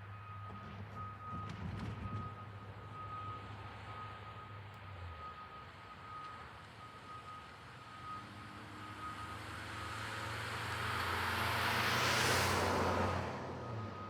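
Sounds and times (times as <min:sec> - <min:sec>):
road vehicle passing: 0:08.3 - 0:14.0.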